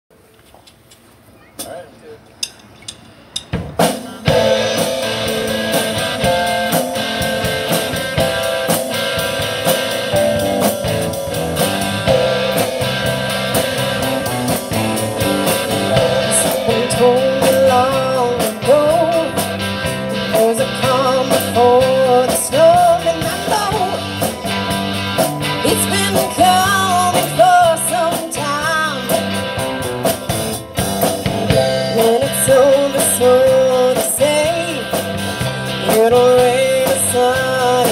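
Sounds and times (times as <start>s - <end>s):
live rock band playing: 2.6s - 37.9s
pitch-bending lead melody: 4.2s - 28.2s.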